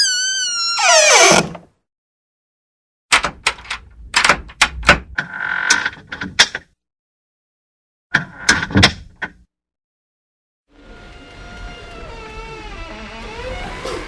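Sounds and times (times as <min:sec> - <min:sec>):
door hinge creak: 0:00.0 - 0:01.6, 0:11.0 - 0:14.0
door clicks and knocks: 0:03.1 - 0:05.2.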